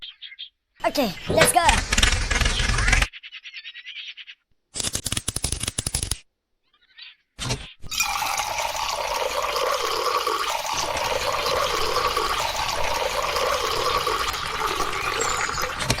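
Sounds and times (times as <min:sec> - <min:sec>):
water pouring and splashing: 0:07.9 - 0:16.0.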